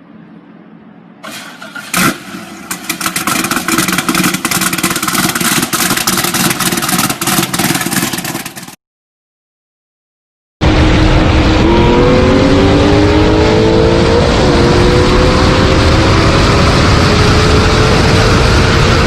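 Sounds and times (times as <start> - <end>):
engine starting with loud burst: 1.2 - 8.8
engine running rough pulsing: 1.3 - 8.8, 10.6 - 19.0.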